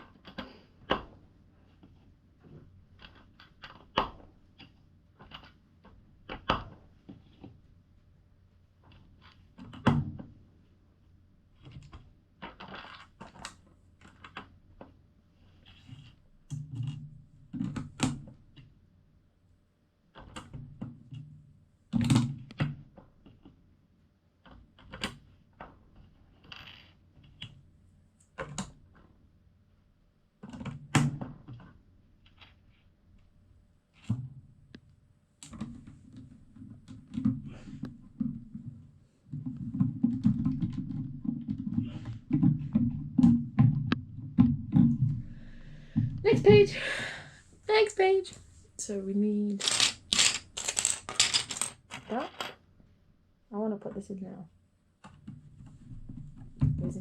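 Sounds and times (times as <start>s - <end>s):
plastic toy bricks clicking: 49.6s - 52.5s.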